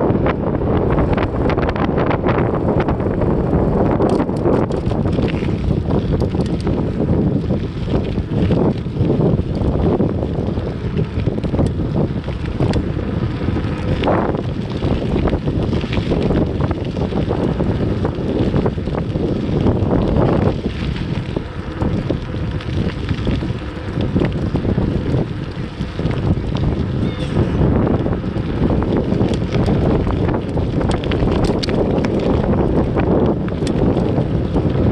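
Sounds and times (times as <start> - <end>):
bicycle clicks and rattles: 0.0 - 34.9
wind buffeting microphone: 0.0 - 34.9.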